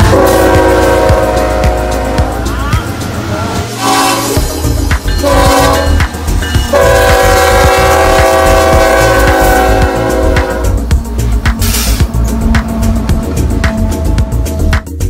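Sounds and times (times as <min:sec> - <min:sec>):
locomotive air horn: 0:00.0 - 0:02.6, 0:03.8 - 0:04.4, 0:05.2 - 0:06.1, 0:06.7 - 0:10.9, 0:11.6 - 0:13.0
train rumbling: 0:00.0 - 0:15.0.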